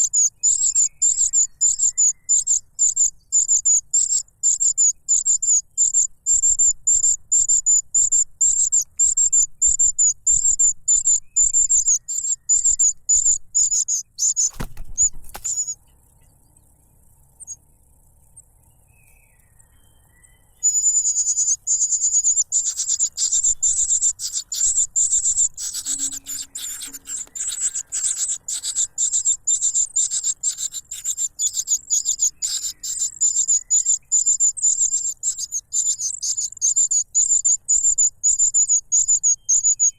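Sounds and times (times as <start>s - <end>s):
brief knock: 14.5s - 15.6s
cuckoo chick begging cheeps: 20.7s - 37.9s.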